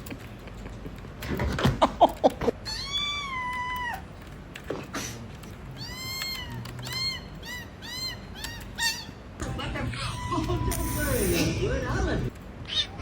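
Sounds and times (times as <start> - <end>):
cat meowing: 5.7 - 9.2, 12.6 - 13.0.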